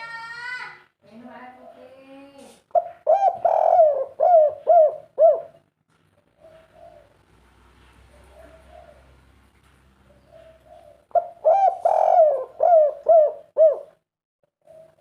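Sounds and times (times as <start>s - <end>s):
dove cooing: 2.7s - 7.4s, 8.0s - 9.4s, 10.1s - 14.0s, 14.6s - 15.0s.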